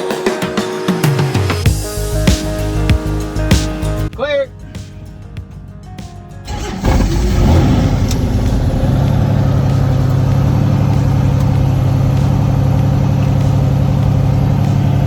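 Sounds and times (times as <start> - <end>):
helicopter engine starting up: 6.5 - 15.0.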